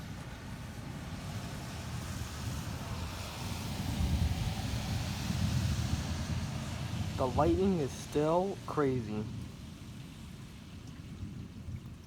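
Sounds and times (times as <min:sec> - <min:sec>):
rain hissing: 0:07.2 - 0:09.3.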